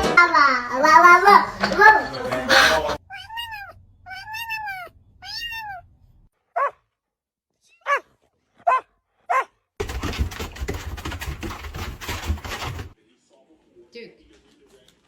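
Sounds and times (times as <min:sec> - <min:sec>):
cat meowing: 0:00.8 - 0:05.9.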